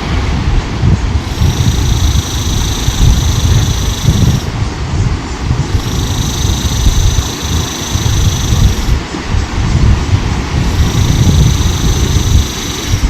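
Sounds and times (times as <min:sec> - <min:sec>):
high steady buzz: 0:00.0 - 0:13.0
wind rumble on microphone: 0:00.0 - 0:13.0.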